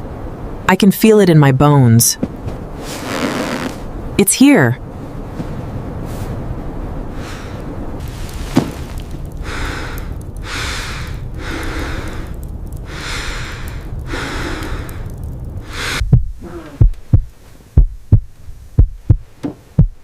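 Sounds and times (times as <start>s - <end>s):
person breathing heavily: 7.1s - 7.8s, 9.4s - 17.0s
heartbeat thumps: 15.6s - 20.0s.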